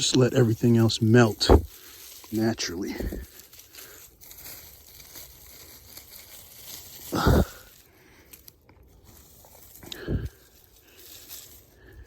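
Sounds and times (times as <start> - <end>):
snow crunching: 0.0 - 8.2.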